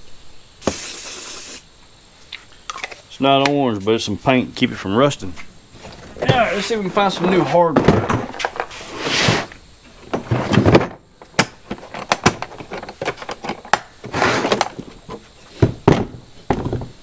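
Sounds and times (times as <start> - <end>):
scraping and rustling: 5.3 - 11.0, 11.7 - 15.6.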